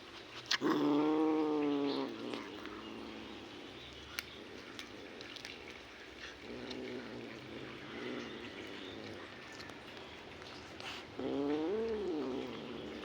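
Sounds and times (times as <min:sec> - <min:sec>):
cat growling low: 0:00.0 - 0:13.0
faint sharp clicks: 0:03.8 - 0:06.9.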